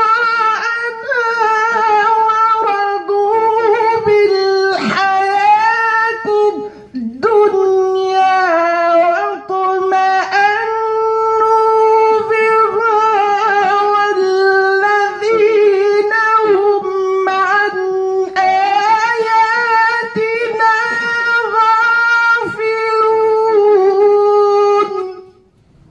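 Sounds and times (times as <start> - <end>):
man chanting melodically: 0.0 - 25.5.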